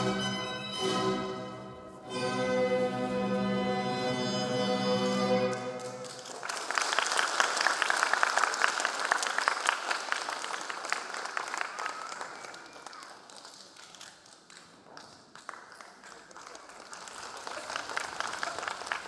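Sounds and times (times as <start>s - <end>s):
music: 0.0s - 6.1s
audience applause: 5.8s - 14.1s, 15.3s - 19.0s.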